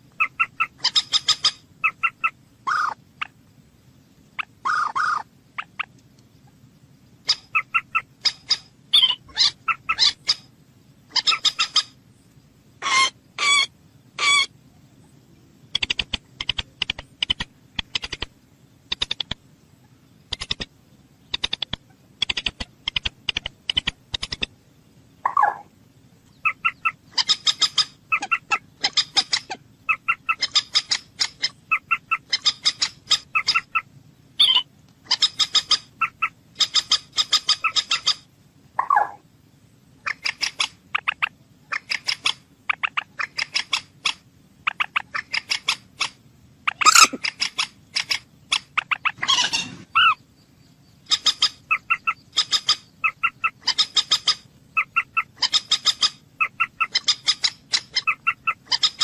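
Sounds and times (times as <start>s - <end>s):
moorhen clicking chatter: 0.1s - 3.4s, 7.2s - 10.5s, 15.7s - 24.6s, 25.2s - 25.7s, 26.3s - 39.2s, 40.0s - 50.2s, 51.0s - 59.0s
moorhen drawn-out calls: 0.1s - 3.4s, 4.4s - 5.9s, 7.2s - 10.5s, 11.1s - 12.0s, 12.8s - 14.6s, 25.2s - 25.7s, 26.3s - 39.2s, 40.0s - 50.3s, 51.0s - 59.0s.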